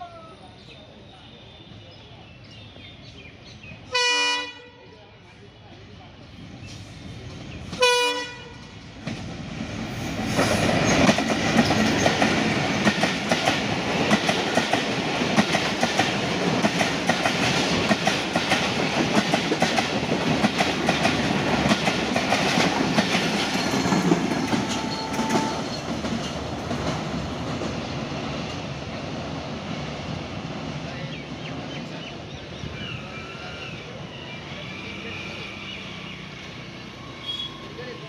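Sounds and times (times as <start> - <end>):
diesel locomotive engine: 0.0 - 38.0
train wheels clacking over rail joints: 8.6 - 28.7.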